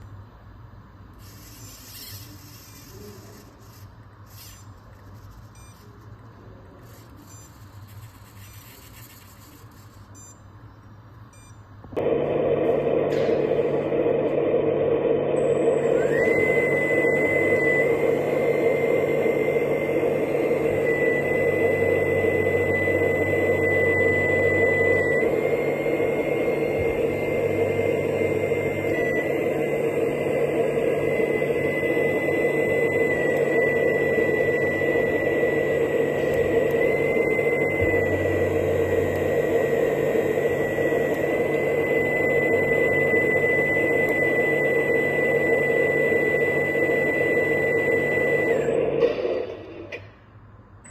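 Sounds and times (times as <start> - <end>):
mechanical hum: 0.0 - 50.9
rising whine: 11.9 - 50.9.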